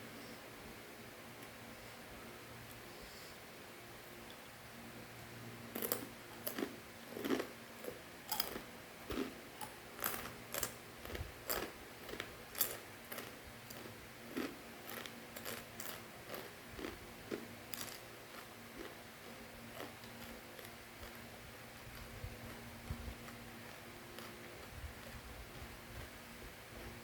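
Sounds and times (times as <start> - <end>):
crunchy snack being chewed: 5.7 - 26.1.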